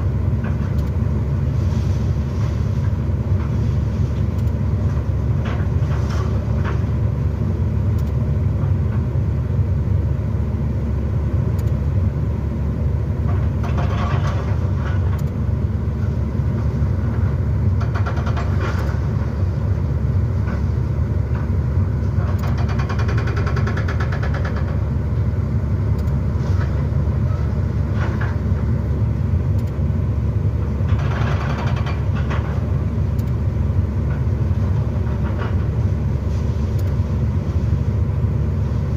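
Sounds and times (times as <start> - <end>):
excavator engine rumbling: 0.0 - 38.9
machine rattling bursts: 22.4 - 24.8.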